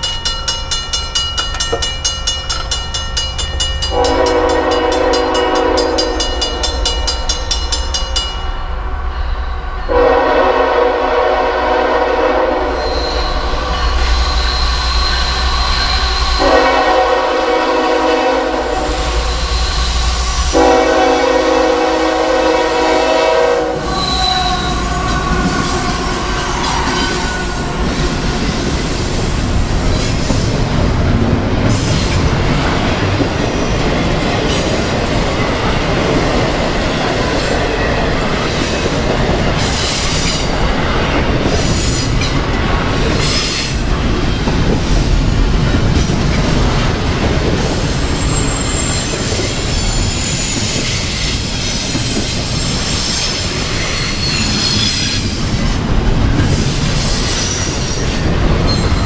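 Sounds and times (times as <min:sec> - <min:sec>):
freight train wheels rumbling on rail: 0:00.0 - 0:59.0
high wheel squealing: 0:12.8 - 0:16.5, 0:18.9 - 0:20.5, 0:48.0 - 0:55.3.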